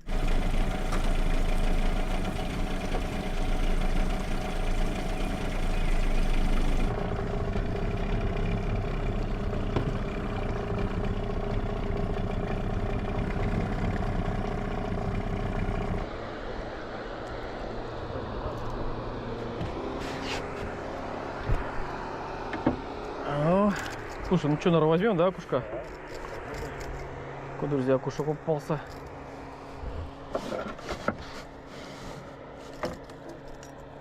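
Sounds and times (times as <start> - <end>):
outboard motor running: 0.0 - 16.1.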